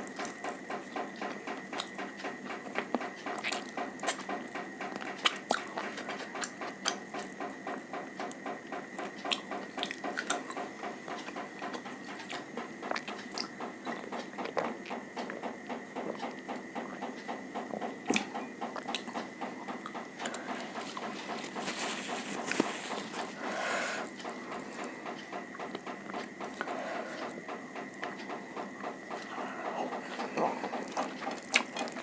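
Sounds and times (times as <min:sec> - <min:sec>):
chewing with mouth clicks: 0:02.7 - 0:04.3, 0:29.3 - 0:32.0.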